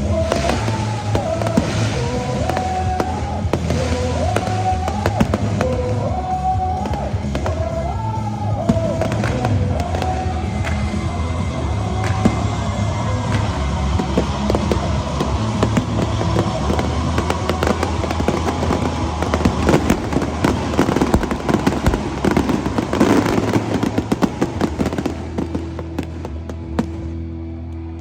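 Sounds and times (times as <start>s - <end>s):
fireworks bangs and crackling: 0.0s - 27.9s.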